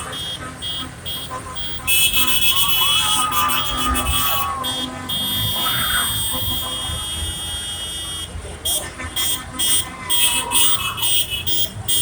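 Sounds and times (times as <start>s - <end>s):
tractor engines rumbling: 0.0s - 12.0s
vehicle horns beeping: 0.0s - 12.0s.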